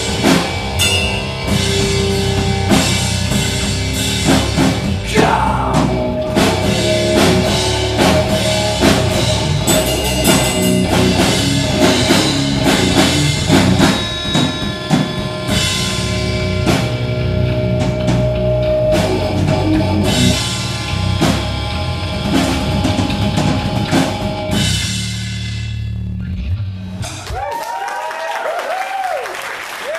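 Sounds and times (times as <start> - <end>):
electric guitars: 0.0 - 25.0
drum kit beating: 0.0 - 26.0.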